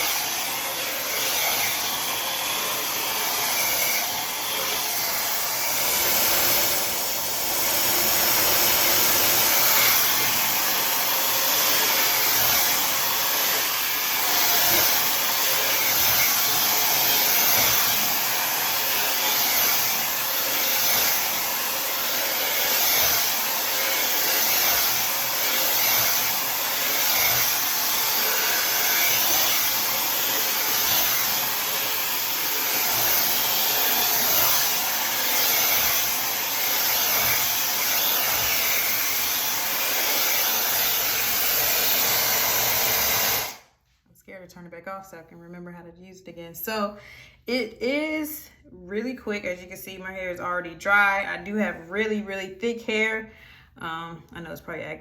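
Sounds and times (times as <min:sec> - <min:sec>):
hair dryer blowing air: 0:00.0 - 0:43.9.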